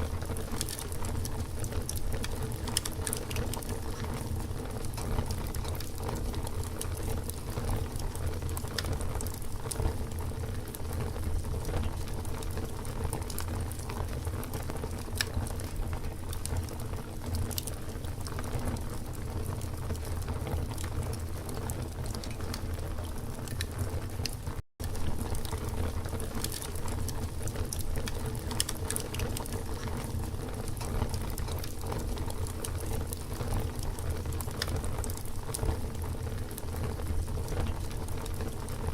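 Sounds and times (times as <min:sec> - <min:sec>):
campfire crackling and popping: 0:00.0 - 0:38.9.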